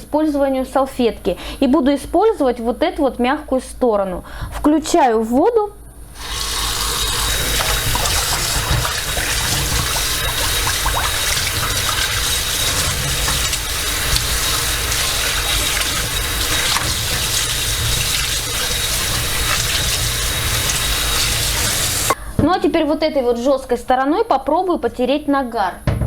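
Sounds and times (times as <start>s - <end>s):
dishes clinking: 6.2s - 22.2s
tap running into sink: 6.2s - 22.2s.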